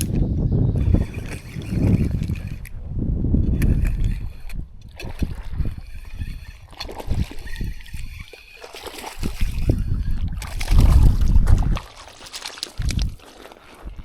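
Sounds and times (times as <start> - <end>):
water splashing and sloshing: 3.5 - 14.0.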